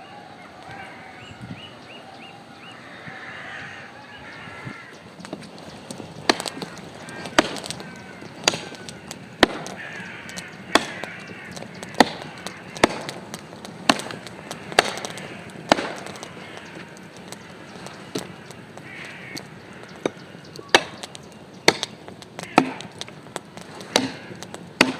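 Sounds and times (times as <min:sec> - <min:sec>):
wood being chopped: 0:04.9 - 0:24.9.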